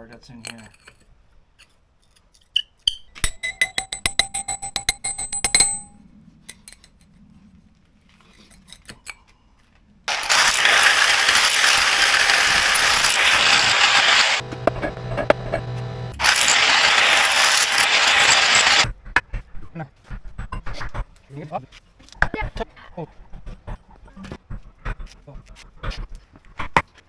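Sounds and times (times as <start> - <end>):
loud steady hissing: 10.1 - 18.9.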